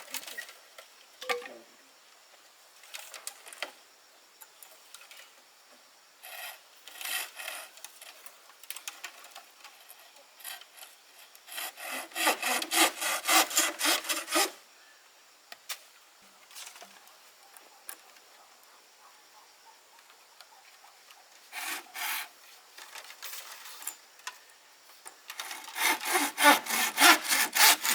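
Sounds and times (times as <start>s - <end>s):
hand saw cutting wood: 6.2s - 7.7s, 11.4s - 14.6s, 21.5s - 22.4s, 25.3s - 27.9s.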